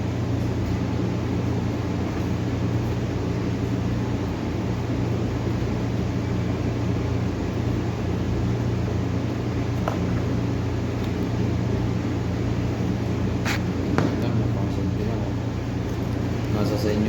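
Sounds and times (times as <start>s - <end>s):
low machine hum: 0.0s - 17.0s
even hiss: 13.3s - 14.5s.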